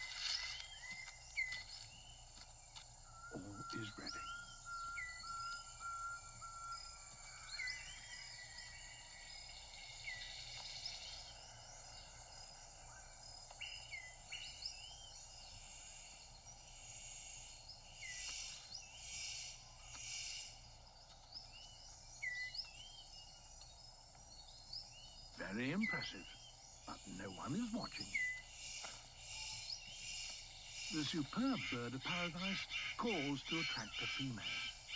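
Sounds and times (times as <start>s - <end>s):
upswept bird whistles: 0.0s - 11.3s, 21.4s - 34.9s
high insect drone: 0.0s - 34.9s.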